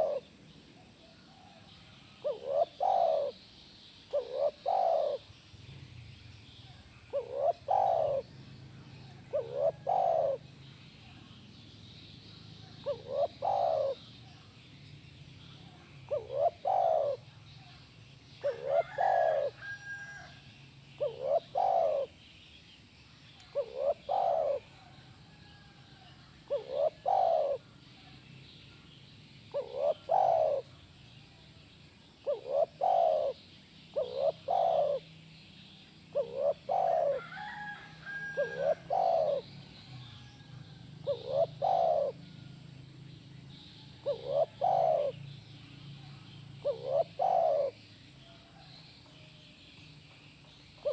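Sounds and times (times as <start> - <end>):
dove cooing: 0.0 - 3.4, 4.0 - 5.3, 6.8 - 11.4, 12.6 - 14.4, 15.6 - 17.3, 18.4 - 20.3, 21.0 - 22.2, 23.5 - 27.8, 29.5 - 30.8, 32.2 - 35.1, 36.1 - 40.4, 41.0 - 42.4, 43.5 - 45.2, 46.0 - 47.9
small bird chirping: 0.0 - 20.3, 20.9 - 50.9.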